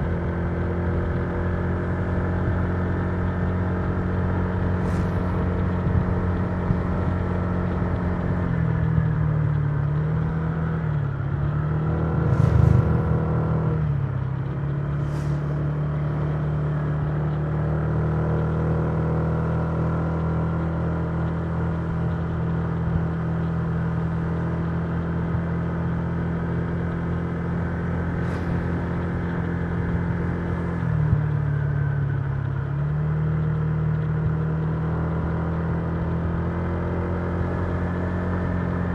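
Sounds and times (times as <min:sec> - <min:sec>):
low rumble: 0:04.6 - 0:08.2, 0:10.2 - 0:17.4, 0:27.7 - 0:32.1.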